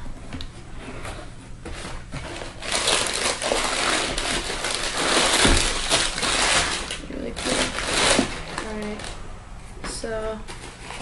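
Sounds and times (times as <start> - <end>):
packaging crinkling and rustling: 1.7 - 9.2, 10.5 - 11.0.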